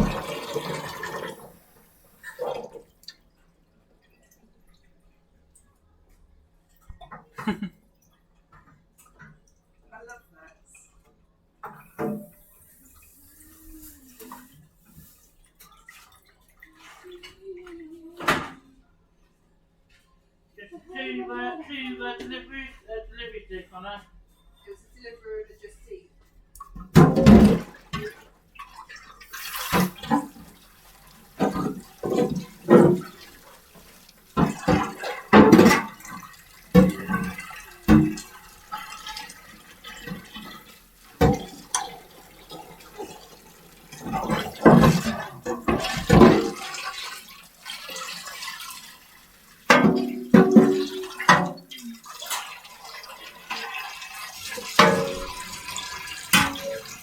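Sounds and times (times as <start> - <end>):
running and splashing water: 0.0 - 2.8, 11.7 - 18.4, 27.0 - 57.0.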